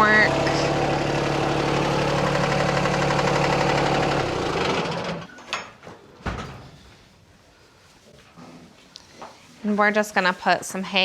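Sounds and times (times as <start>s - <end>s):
tractor engine idling: 0.0s - 5.3s.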